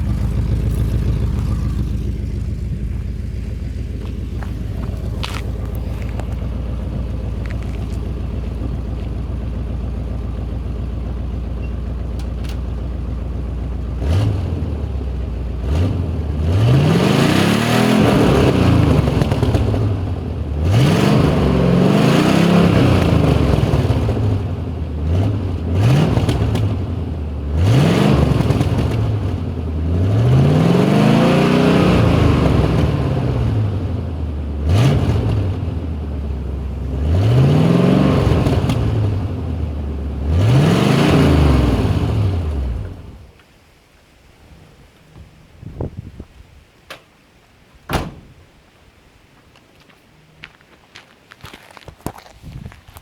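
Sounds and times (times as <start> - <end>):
truck engine idling and revving: 0.0 - 43.4.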